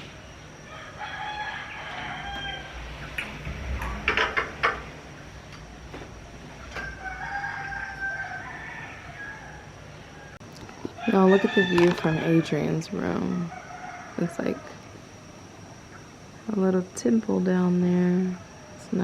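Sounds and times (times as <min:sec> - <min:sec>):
rooster crowing: 0:00.6 - 0:03.1, 0:06.6 - 0:15.0.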